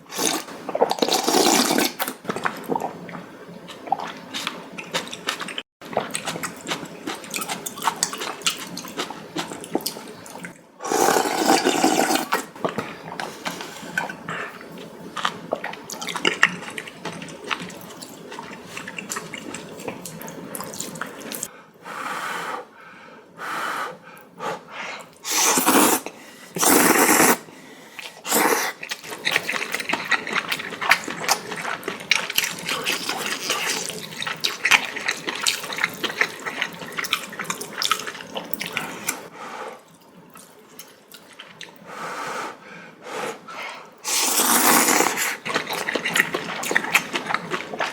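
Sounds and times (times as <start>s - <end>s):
slurping noodles: 0.0s - 3.2s, 3.8s - 21.5s, 25.2s - 39.3s, 43.2s - 47.9s
wet chewing and mouth clicks: 0.2s - 21.5s, 28.0s - 39.3s, 40.0s - 41.8s, 44.4s - 47.9s.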